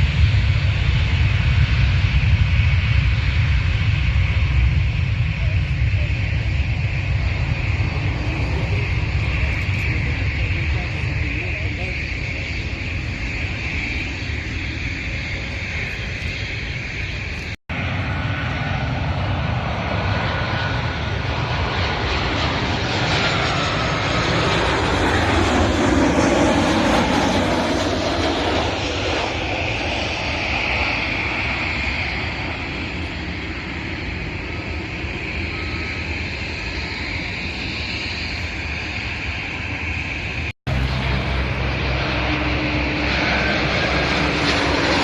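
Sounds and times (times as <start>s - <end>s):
airliner engines passing: 0.0s - 45.0s
engine whine dropping in pitch: 40.1s - 45.0s.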